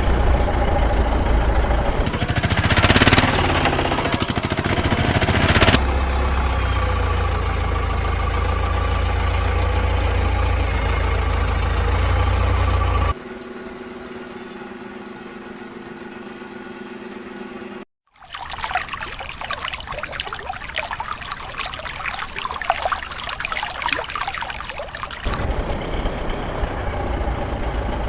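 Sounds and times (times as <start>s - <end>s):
engine running: 0.0s - 13.2s, 25.2s - 28.0s.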